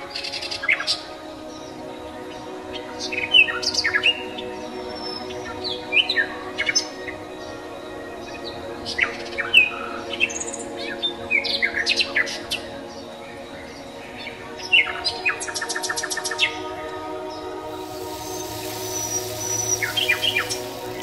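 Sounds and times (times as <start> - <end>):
steady drone: 0.0 - 21.0
birds chirping: 1.5 - 21.0
rapid bird trill: 17.7 - 21.0.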